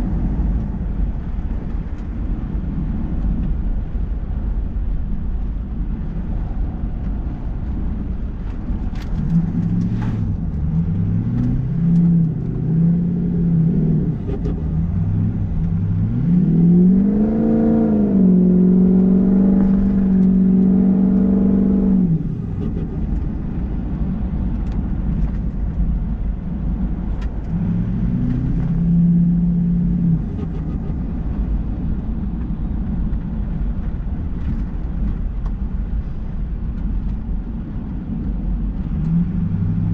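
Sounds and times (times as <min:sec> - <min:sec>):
low road noise rumble: 0:00.0 - 0:39.9
pickup engine revving: 0:09.2 - 0:23.2.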